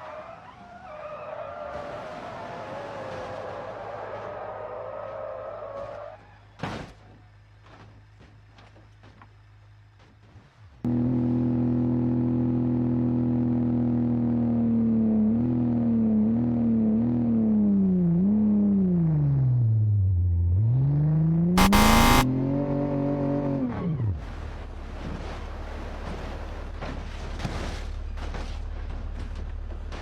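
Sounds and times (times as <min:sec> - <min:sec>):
vehicle engine revving: 0:21.6 - 0:22.3.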